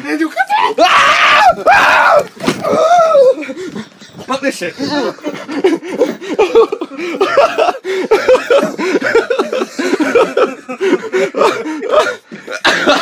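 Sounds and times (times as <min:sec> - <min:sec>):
person laughing cries: 0:04.8 - 0:13.0.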